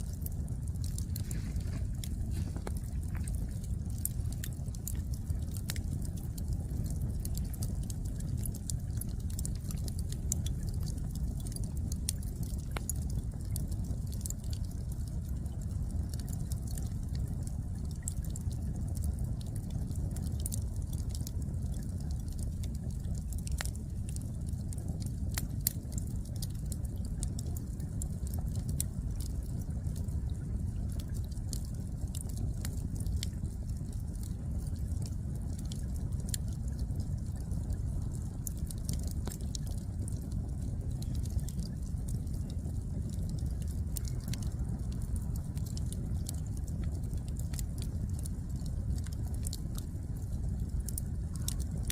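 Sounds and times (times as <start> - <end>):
low rumble: 0.0 - 13.8
firewood crackling and popping: 0.0 - 51.9
low fire rumble: 0.0 - 51.9.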